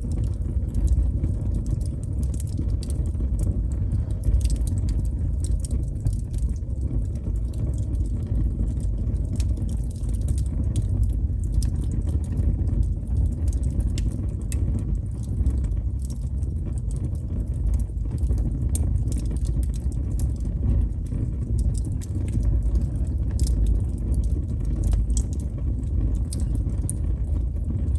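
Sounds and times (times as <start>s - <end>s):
wood fire crackling and popping: 0.0s - 27.9s.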